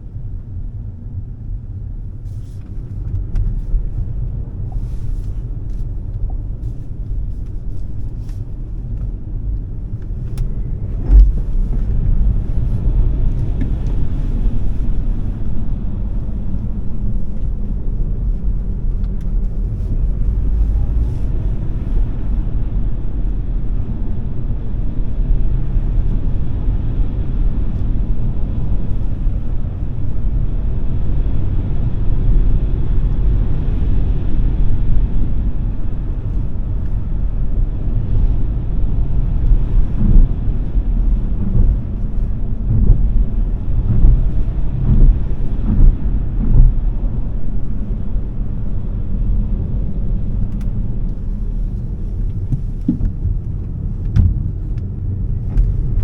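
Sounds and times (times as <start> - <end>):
tyre and road rumble: 0.0 - 56.0
short thumps: 52.3 - 54.7.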